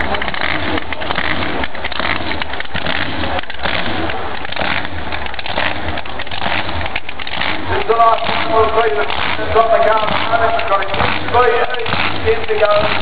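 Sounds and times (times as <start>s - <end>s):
car engine rough rumble: 0.0s - 13.0s.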